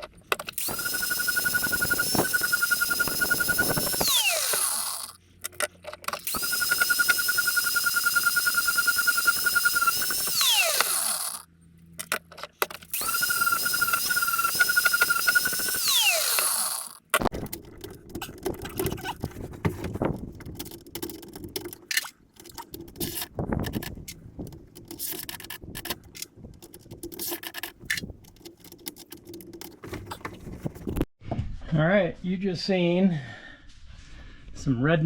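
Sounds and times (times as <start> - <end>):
rotary grinding tool whining: 0.4 - 11.5, 12.8 - 19.2.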